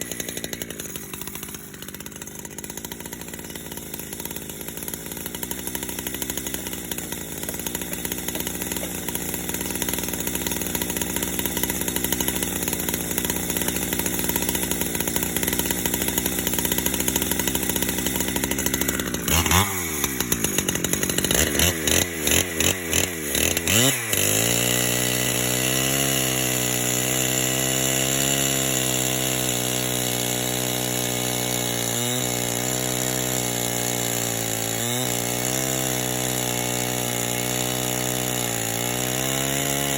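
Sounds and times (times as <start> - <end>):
chainsaw running: 0.0 - 39.9.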